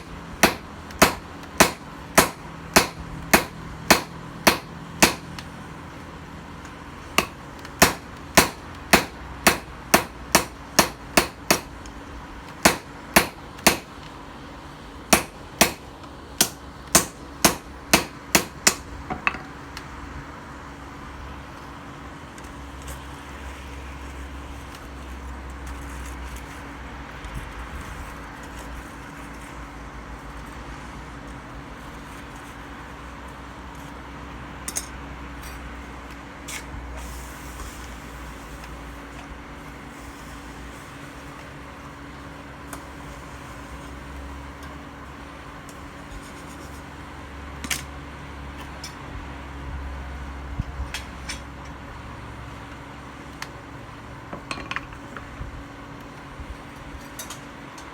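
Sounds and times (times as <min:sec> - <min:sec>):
hammer striking steel: 0:00.0 - 0:05.4, 0:07.2 - 0:11.8, 0:12.6 - 0:14.0, 0:15.1 - 0:19.4
low hum and hiss: 0:00.0 - 0:57.9.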